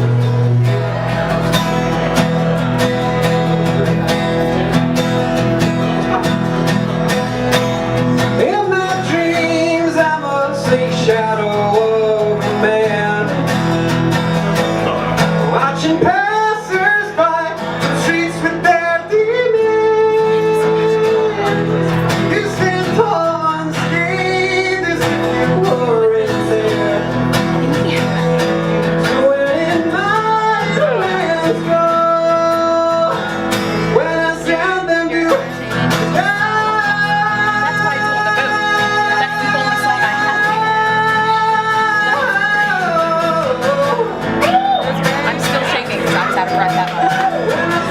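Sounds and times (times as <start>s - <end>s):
guitar accompaniment: 0.0s - 47.9s
person singing: 8.3s - 13.5s, 14.9s - 28.0s, 28.9s - 47.9s.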